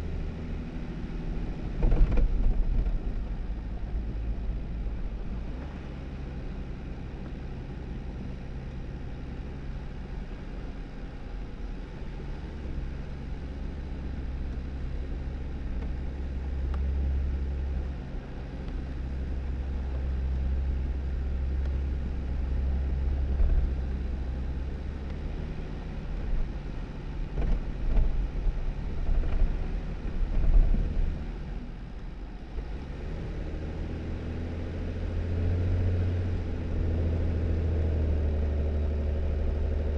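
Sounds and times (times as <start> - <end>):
low car engine hum: 0.0 - 39.9
car bumps and rumbles: 1.2 - 6.0, 13.9 - 32.9.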